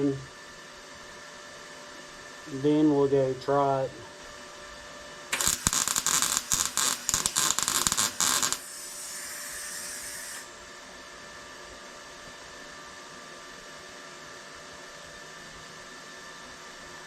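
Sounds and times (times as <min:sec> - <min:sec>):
arc welder crackling: 0:05.3 - 0:10.5.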